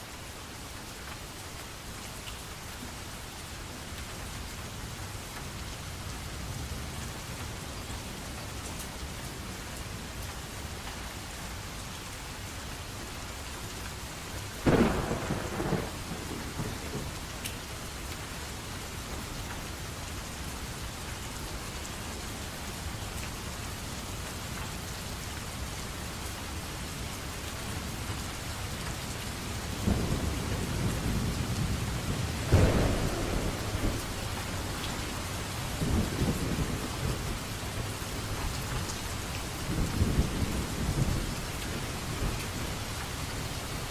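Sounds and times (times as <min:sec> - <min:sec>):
steady rain: 0:00.0 - 0:43.9
thunder cracking and rumbling: 0:14.6 - 0:17.5, 0:29.8 - 0:38.4.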